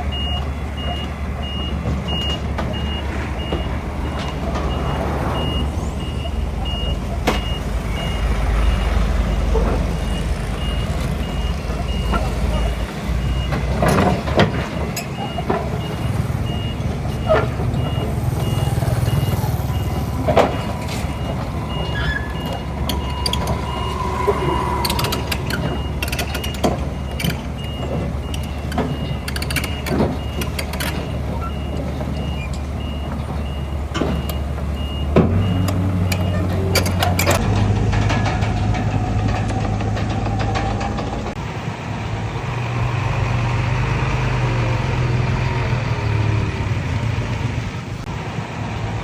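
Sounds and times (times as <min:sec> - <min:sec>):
heavy diesel machinery running: 0:00.0 - 0:49.0
reversing alarm beeping: 0:00.1 - 0:41.1
metallic clanks: 0:13.2 - 0:32.7, 0:35.2 - 0:41.4.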